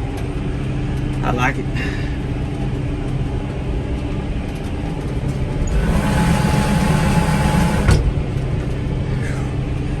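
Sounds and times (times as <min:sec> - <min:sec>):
tractor engine running: 0:05.0 - 0:08.8.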